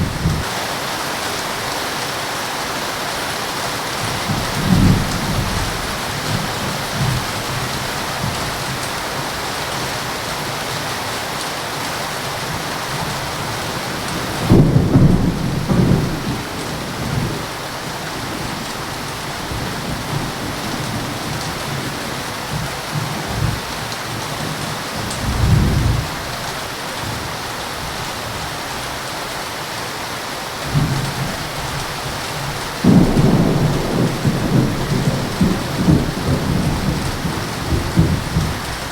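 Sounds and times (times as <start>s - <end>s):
thunder rumbling: 0.0s - 0.5s, 4.0s - 8.8s, 12.5s - 24.2s, 30.7s - 38.9s
heavy rain falling: 0.0s - 38.9s.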